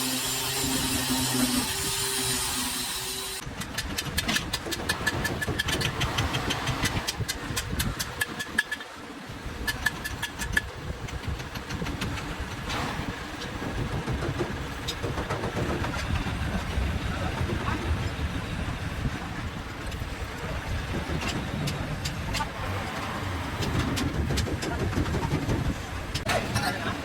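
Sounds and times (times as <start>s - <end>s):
engine running with clicking knock: 3.4s - 8.9s, 9.6s - 18.3s, 19.0s - 26.9s.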